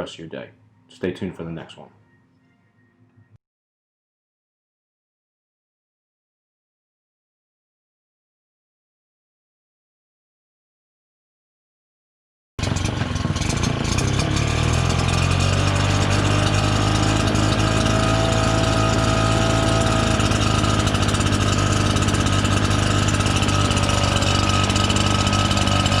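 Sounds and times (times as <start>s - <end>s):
leaf blower engine droning: 12.6s - 26.0s.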